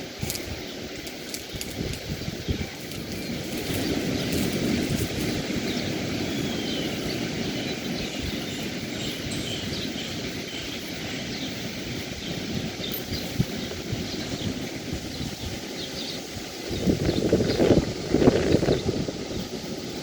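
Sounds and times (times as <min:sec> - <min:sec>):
wind: 0:00.0 - 0:20.0
surf rushing: 0:02.0 - 0:20.0
faint bird chirps: 0:02.4 - 0:11.6.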